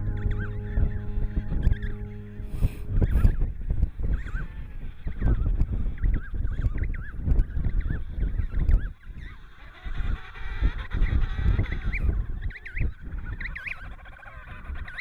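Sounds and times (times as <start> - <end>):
low rumbling noise: 0.0 - 5.9
flock of birds calling: 0.0 - 15.0.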